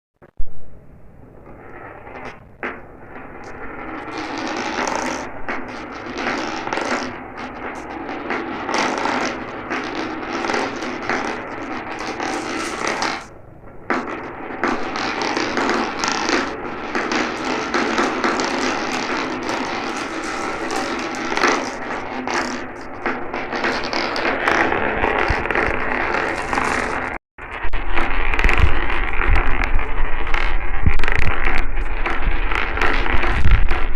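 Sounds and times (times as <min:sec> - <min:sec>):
marbles rattling down a track: 0:03.4 - 0:13.3, 0:13.9 - 0:27.2, 0:27.9 - 0:33.9.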